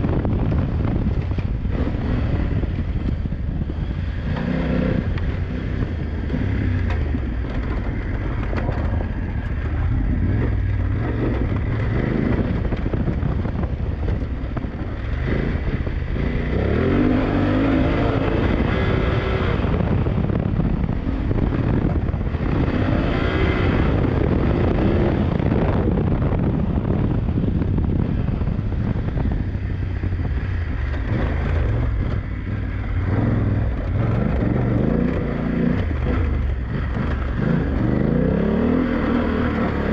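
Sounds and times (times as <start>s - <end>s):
motorcycle engine revving: 0.0s - 39.9s
wind buffeting microphone: 0.0s - 39.9s.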